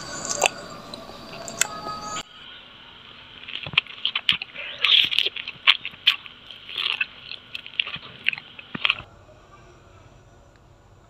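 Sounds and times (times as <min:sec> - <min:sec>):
biting and chewing strawberry: 0:03.4 - 0:09.1.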